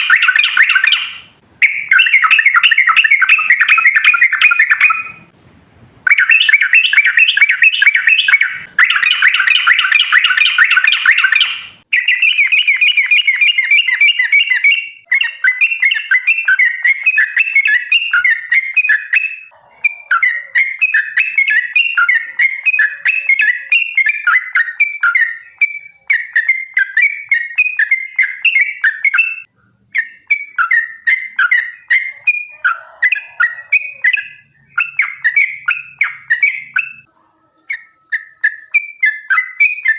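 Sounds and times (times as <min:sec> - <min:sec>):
bird singing chattering notes: 0:33.1 - 0:39.9.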